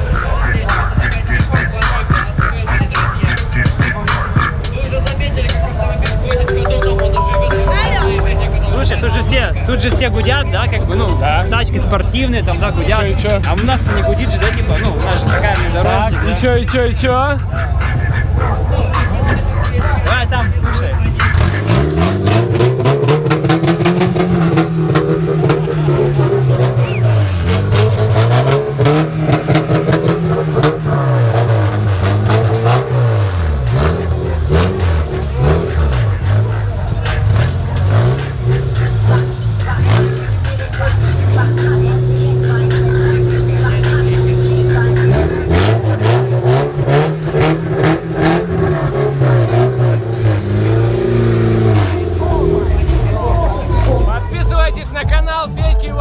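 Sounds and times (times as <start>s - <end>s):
engine revving: 8.8s - 54.0s.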